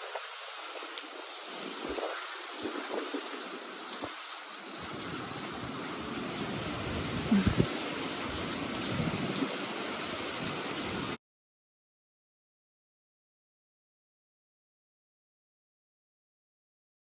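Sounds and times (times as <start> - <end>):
rain and wind hissing: 0.0 - 11.2.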